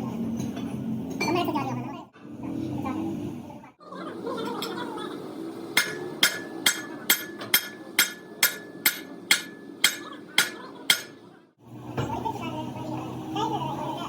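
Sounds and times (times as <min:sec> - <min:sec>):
hammer striking metal: 0:05.8 - 0:11.2.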